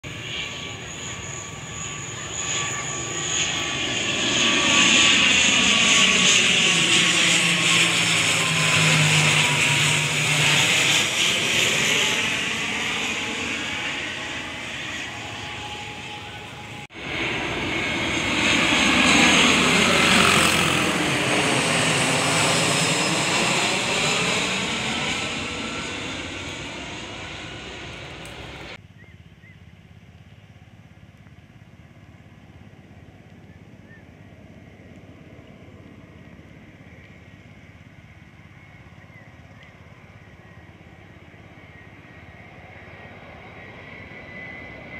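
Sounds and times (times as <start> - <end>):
jet engines roaring: 0.0 - 28.8, 32.4 - 44.9.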